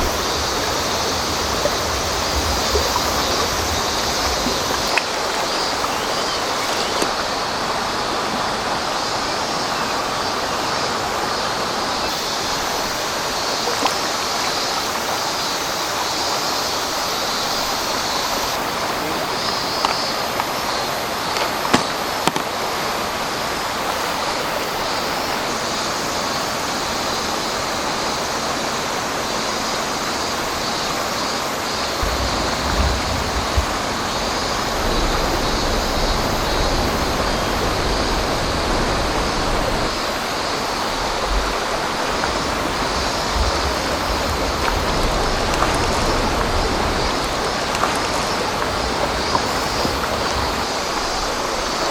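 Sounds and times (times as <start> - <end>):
river water flowing: 0.0 - 51.9.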